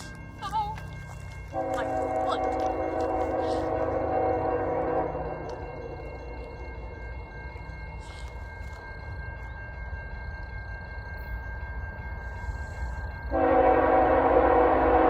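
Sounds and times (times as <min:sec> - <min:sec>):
freight train rumble: 0:00.0 - 0:15.0
locomotive air horn chord: 0:01.6 - 0:05.5, 0:13.3 - 0:15.0.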